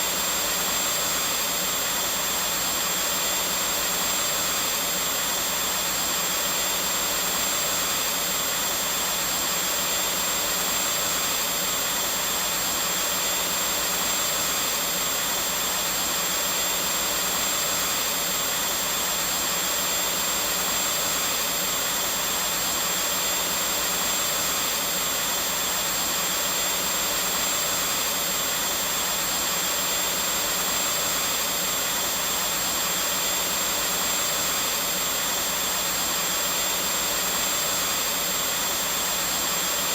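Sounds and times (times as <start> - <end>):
vacuum cleaner motor running: 0.0 - 39.9.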